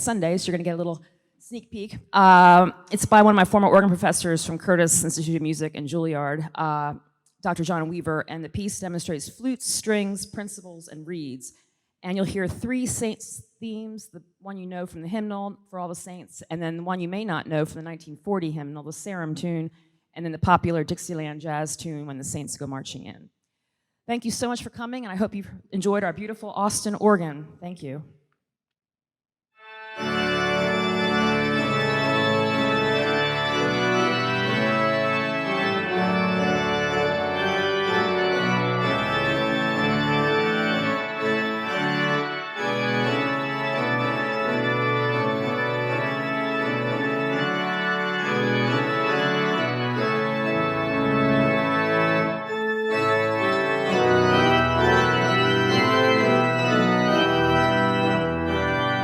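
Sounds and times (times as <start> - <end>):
pipe organ chords: 29.6 - 59.0.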